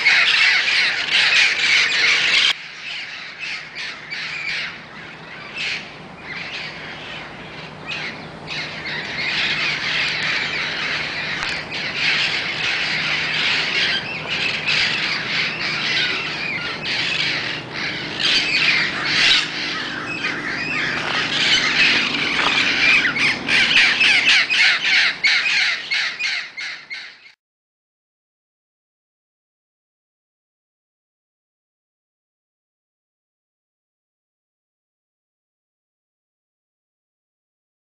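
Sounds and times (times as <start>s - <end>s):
parrots squawking: 0.0s - 27.4s.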